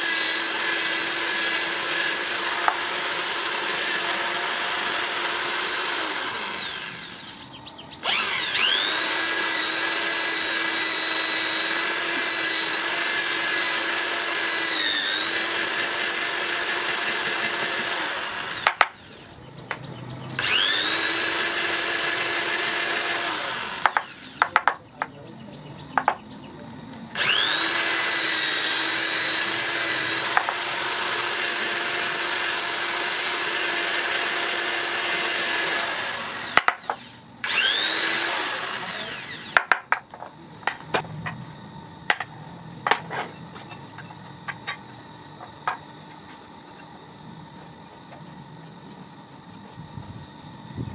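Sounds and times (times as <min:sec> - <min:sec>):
electric power tool whining: 0:00.0 - 0:24.7, 0:27.1 - 0:50.9.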